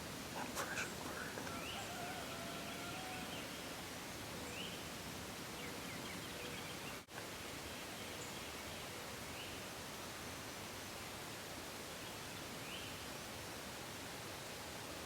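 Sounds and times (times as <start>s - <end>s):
steady hiss: 0.0s - 4.3s.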